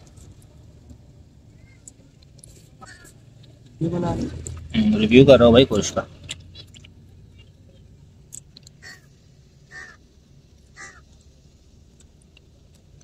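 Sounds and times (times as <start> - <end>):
low steady rumble: 0.0 - 13.0
bird cawing faintly: 1.4 - 2.1, 2.7 - 3.5, 8.7 - 11.2.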